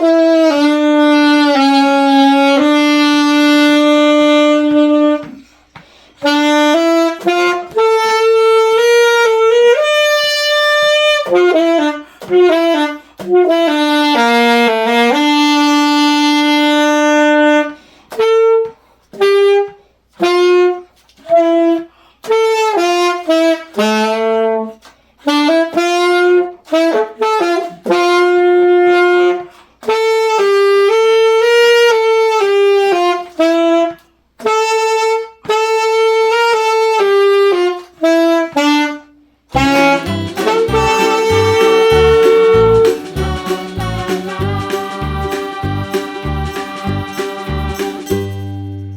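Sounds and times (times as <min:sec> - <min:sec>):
wind instrument slow melody: 0:00.0 - 0:05.4, 0:06.2 - 0:24.7, 0:25.3 - 0:48.9
music with low beat: 0:39.6 - 0:48.9.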